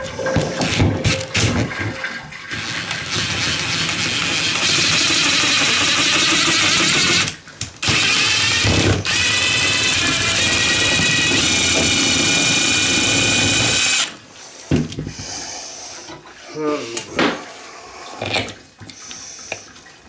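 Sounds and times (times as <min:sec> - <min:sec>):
power drill driving screws: 0:02.5 - 0:14.2.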